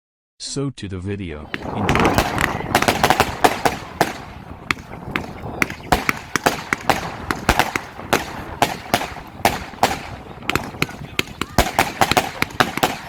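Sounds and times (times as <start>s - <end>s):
firework battery firing: 1.5s - 13.0s
firework crackle: 1.5s - 13.0s.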